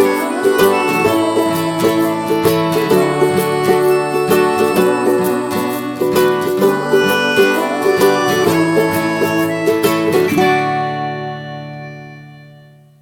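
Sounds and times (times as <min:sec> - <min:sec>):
plucked string music: 0:00.0 - 0:13.0.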